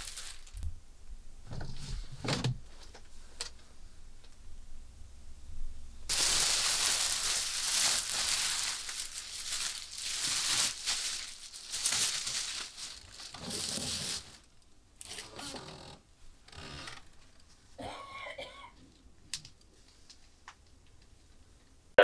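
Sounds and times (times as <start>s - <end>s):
crinkling rustling: 0.0s - 0.8s, 6.1s - 15.6s.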